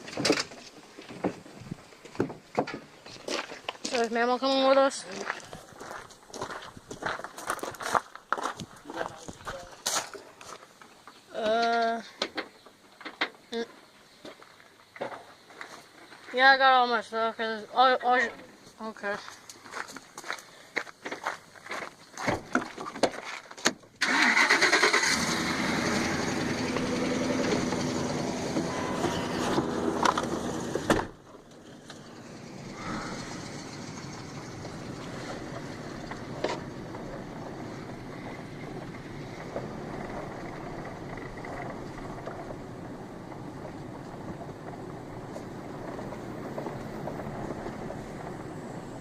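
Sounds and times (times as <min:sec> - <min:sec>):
vehicle engine running: 0:25.0 - 0:49.0.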